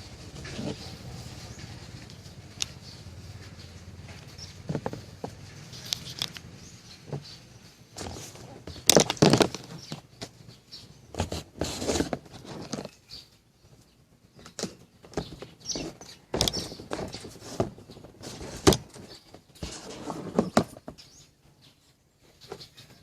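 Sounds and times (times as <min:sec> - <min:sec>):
hard objects clicking and knocking: 0:04.2 - 0:07.3, 0:08.0 - 0:10.4, 0:14.4 - 0:21.1.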